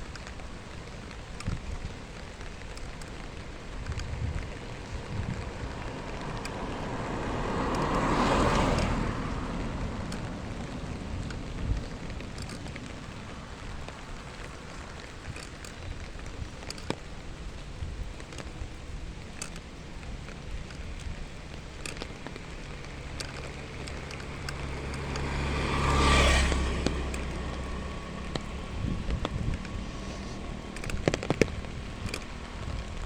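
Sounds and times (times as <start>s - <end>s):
light clicks: 0.0s - 33.0s
road vehicle passing: 0.0s - 33.0s.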